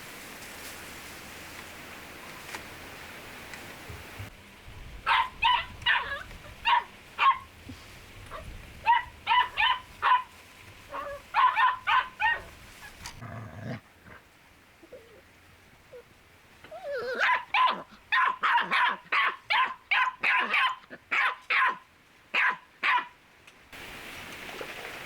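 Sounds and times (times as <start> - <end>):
dog barking: 5.1 - 7.5, 8.3 - 10.3, 10.9 - 12.5, 17.1 - 23.1.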